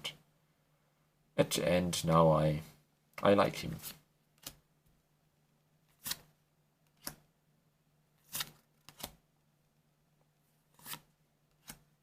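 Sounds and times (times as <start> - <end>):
cards sliding swishes: 5.9 - 6.3, 8.2 - 9.2, 10.7 - 11.9.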